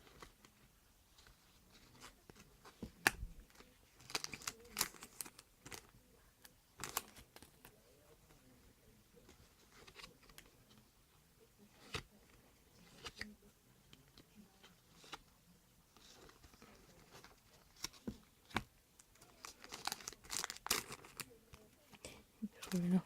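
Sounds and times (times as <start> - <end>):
wrapper rustling: 19.2 - 21.3.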